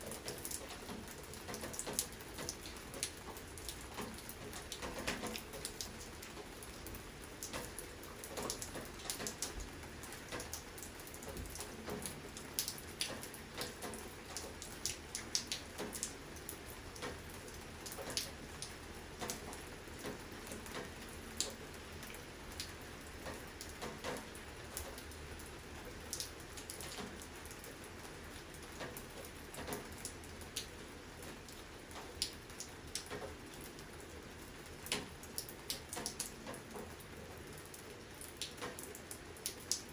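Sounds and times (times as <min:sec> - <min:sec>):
raindrops ticking sharply: 0:00.0 - 0:39.9
steady rain hiss: 0:00.0 - 0:39.9.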